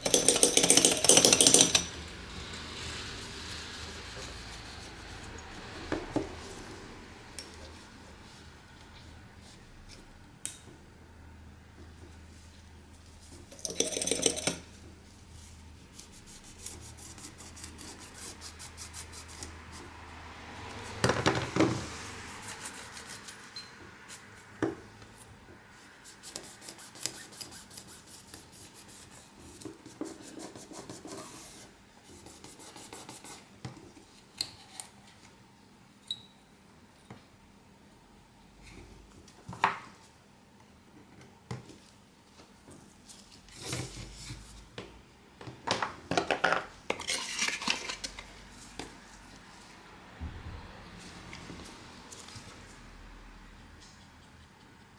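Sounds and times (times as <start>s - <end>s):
hand tools scraping: 0.0s - 2.1s.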